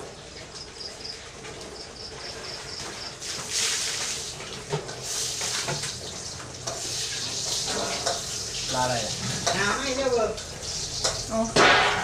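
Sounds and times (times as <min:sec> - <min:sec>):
food sizzling in hot oil: 0:02.4 - 0:12.0.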